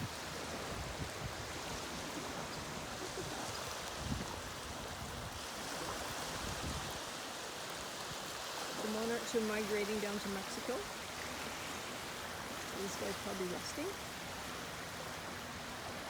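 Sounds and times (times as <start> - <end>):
water rushing: 0.0 - 16.0.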